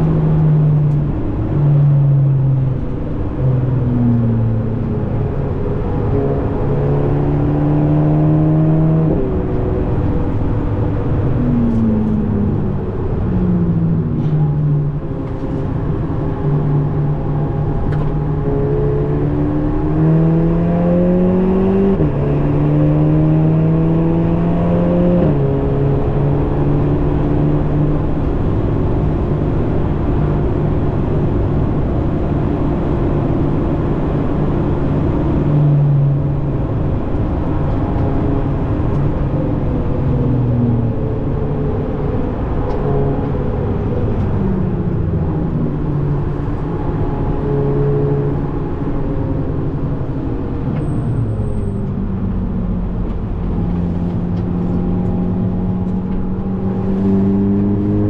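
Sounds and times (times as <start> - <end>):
car engine revving: 0.0 - 58.0
tyre and road noise: 0.0 - 58.0.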